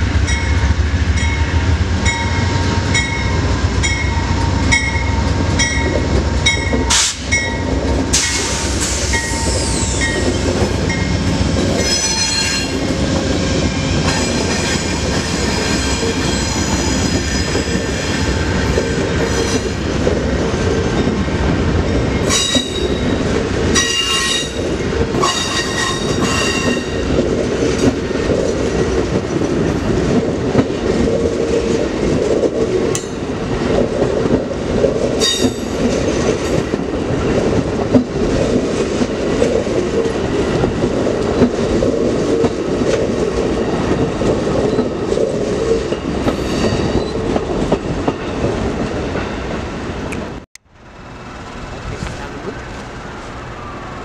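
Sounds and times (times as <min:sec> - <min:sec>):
high clacking of train: 0:00.0 - 0:54.0
train rumbling past: 0:00.0 - 0:54.0
steel wheels squealing: 0:06.5 - 0:11.1, 0:11.8 - 0:19.8.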